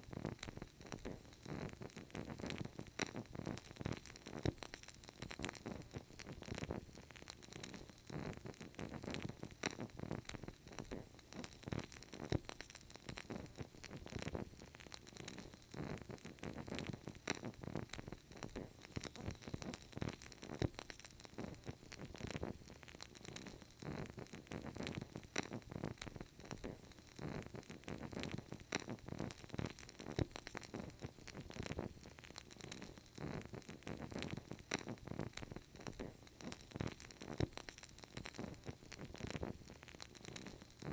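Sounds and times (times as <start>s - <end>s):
candle crackling: 0.0s - 40.9s.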